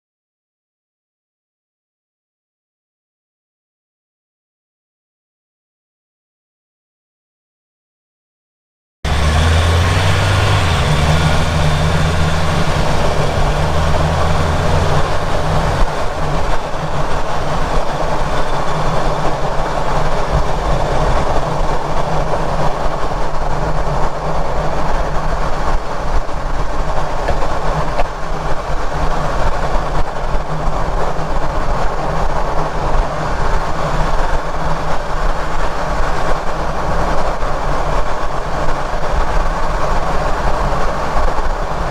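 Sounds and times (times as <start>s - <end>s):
low hum: 9.1s - 36.9s
vehicle drivetrain and road rumble: 9.1s - 41.9s.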